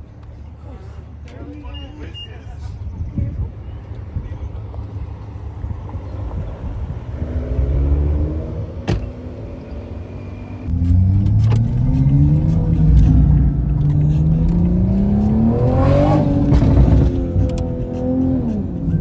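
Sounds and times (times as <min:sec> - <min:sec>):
car engine revving: 0:07.1 - 0:08.9, 0:10.6 - 0:19.0.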